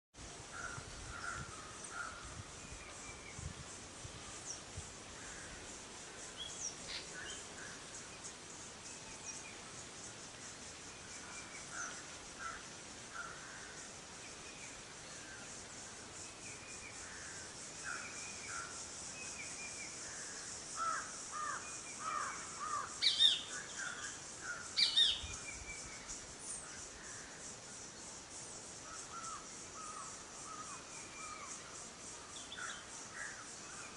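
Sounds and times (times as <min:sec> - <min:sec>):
wild birds calling: 0:20.0 - 0:25.6.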